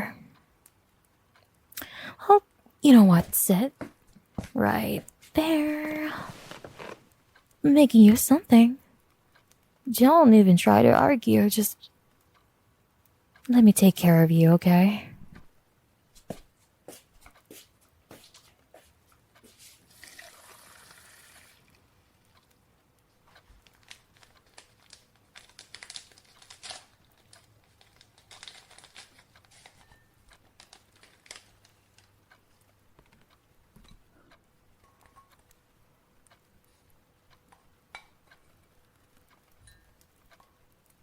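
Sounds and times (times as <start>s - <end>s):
rustling: 6.1s - 7.1s, 23.4s - 32.1s.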